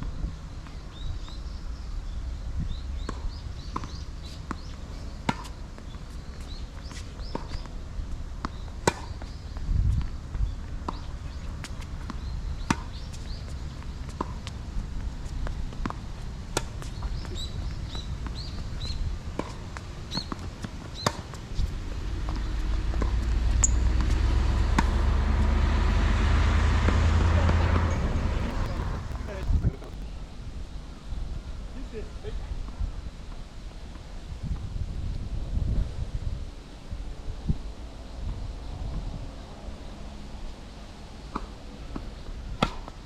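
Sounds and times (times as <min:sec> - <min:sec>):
wind rumble on microphone: 0:00.0 - 0:05.0, 0:09.3 - 0:19.4, 0:20.9 - 0:31.8, 0:32.4 - 0:40.8
tennis balls struck by rackets: 0:08.4 - 0:09.3, 0:10.8 - 0:14.5, 0:26.8 - 0:30.0.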